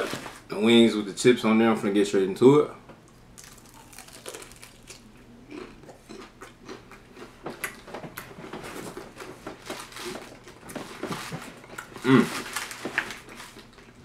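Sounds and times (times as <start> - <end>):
person crunching chicken wing: 3.4 - 7.3.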